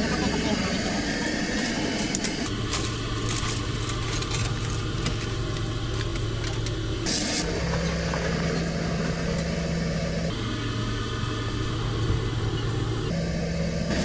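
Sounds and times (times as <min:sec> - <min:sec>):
low engine hum: 0:04.5 - 0:14.0.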